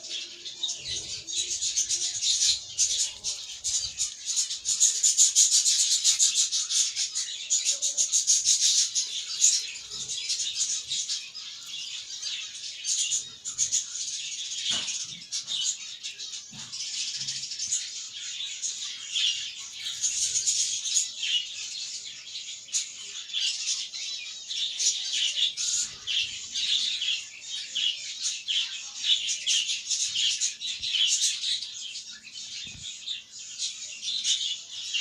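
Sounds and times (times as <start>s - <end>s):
budgies chirping and warbling: 0.0s - 35.0s.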